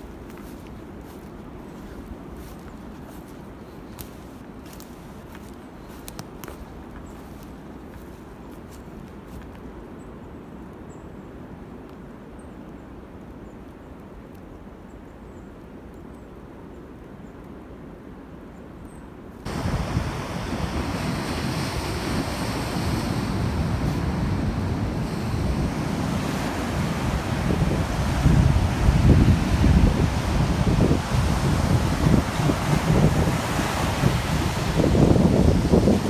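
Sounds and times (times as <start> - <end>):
loud steady rushing noise: 19.5 - 36.0.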